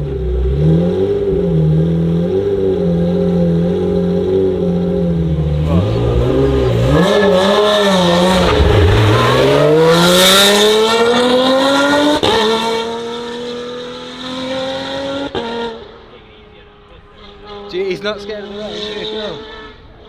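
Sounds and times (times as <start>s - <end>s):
race car engine at full throttle: 0.0s - 20.0s.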